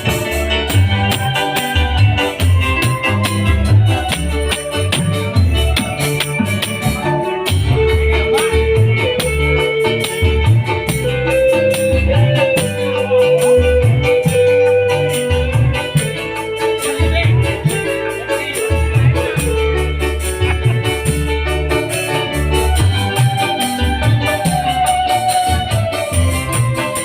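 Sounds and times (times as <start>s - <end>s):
electronic keyboard: 0.0s - 27.0s
heavy pulsing bass beat: 0.0s - 27.0s
long held melody line: 0.0s - 27.0s.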